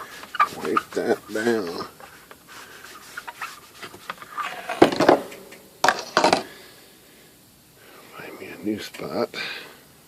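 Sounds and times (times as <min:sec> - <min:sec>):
cloth rag rubbing: 0:00.0 - 0:04.7.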